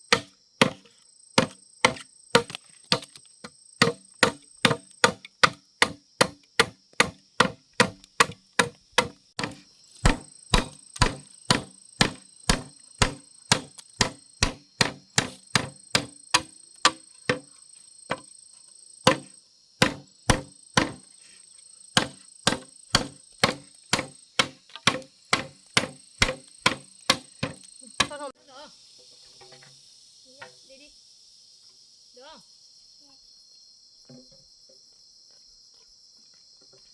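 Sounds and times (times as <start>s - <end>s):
insects buzzing: 0.0s - 36.9s
rapid chopping with a blade: 0.1s - 3.2s, 3.8s - 17.5s, 19.1s - 21.1s, 22.0s - 28.2s.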